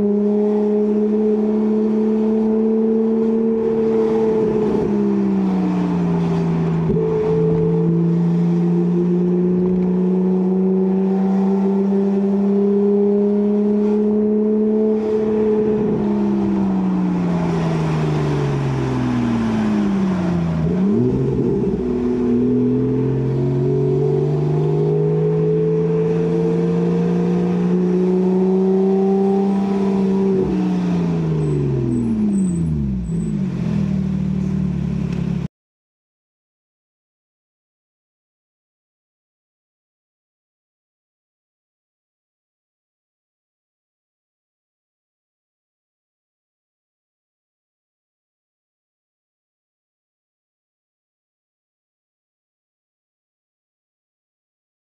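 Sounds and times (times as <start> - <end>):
car engine at steady revs: 0.0 - 35.5.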